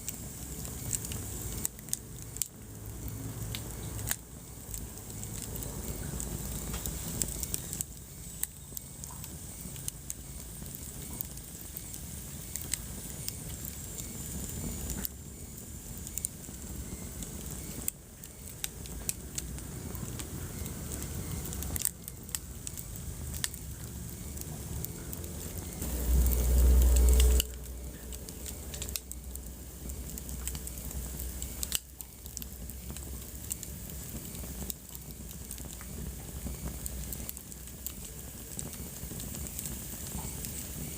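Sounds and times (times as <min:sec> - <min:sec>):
wood fire crackling: 0:00.0 - 0:40.9
loud low rumble: 0:23.9 - 0:31.5.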